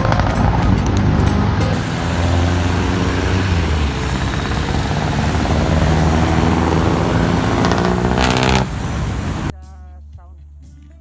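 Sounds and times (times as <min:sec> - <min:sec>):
engine droning hum: 0:00.4 - 0:09.5
loud hiss: 0:01.8 - 0:09.5.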